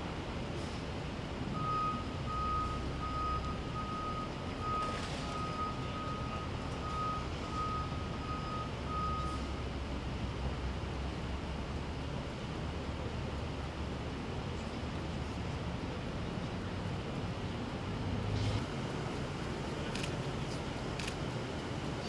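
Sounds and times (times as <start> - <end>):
reversing alarm beeping: 1.6 - 9.6.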